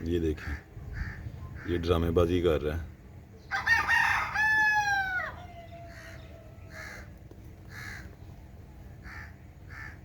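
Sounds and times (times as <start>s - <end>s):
faint cawing calls: 0.3s - 2.0s, 3.5s - 8.3s, 9.0s - 10.0s
rooster crowing: 3.5s - 7.1s.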